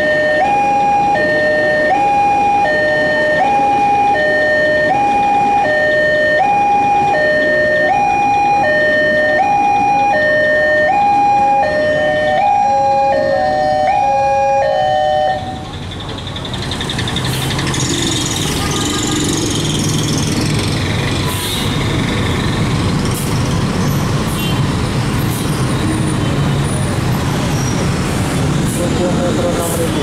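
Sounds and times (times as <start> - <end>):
two-tone crossing alarm: 0.0 - 15.7.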